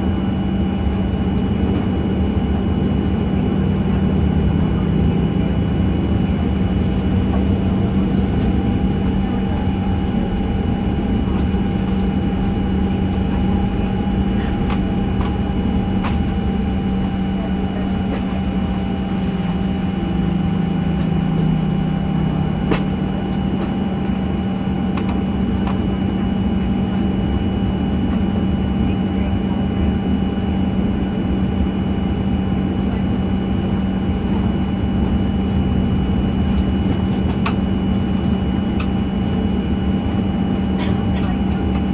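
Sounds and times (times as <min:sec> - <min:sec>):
airplane cabin engine drone: 0:00.0 - 0:41.9
thin steady whine: 0:04.4 - 0:25.5.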